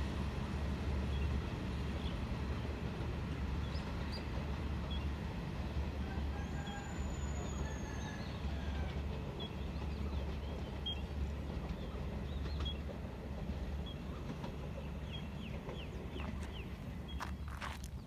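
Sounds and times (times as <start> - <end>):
distant diesel train rumble: 0.0 - 18.0.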